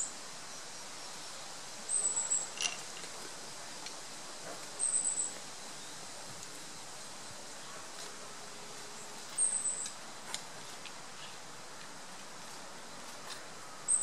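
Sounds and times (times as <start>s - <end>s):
birds giving thin high calls: 1.9s - 3.0s, 8.9s - 10.0s.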